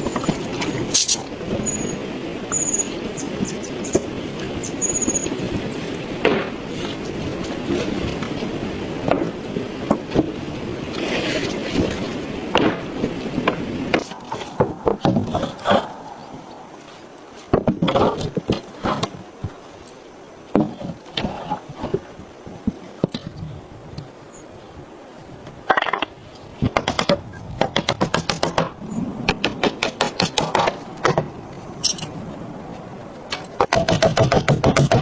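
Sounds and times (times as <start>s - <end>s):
wooden knocks and clatter: 17.5s - 19.5s, 25.7s - 32.2s, 33.3s - 35.0s.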